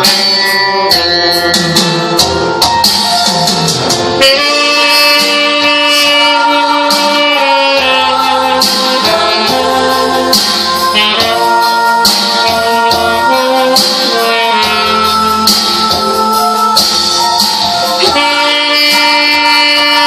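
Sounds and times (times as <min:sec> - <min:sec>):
jingling percussion rhythm: 0:00.0 - 0:20.0
sustained melody notes: 0:00.0 - 0:20.0.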